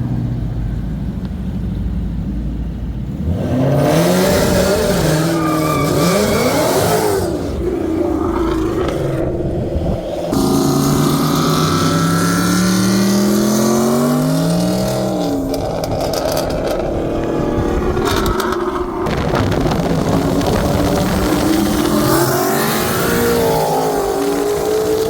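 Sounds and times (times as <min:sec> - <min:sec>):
car engine accelerating hard: 0:02.5 - 0:25.0.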